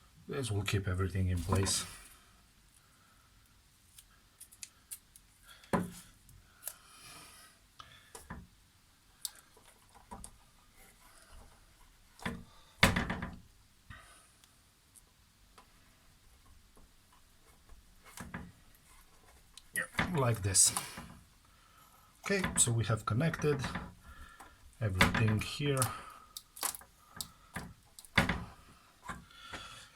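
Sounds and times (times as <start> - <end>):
hands tapping and clicking parts: 23.4 - 29.7.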